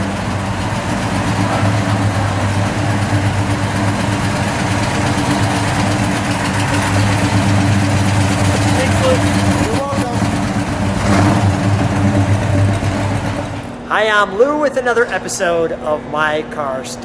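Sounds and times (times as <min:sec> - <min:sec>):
car engine idling: 0:00.0 - 0:13.9.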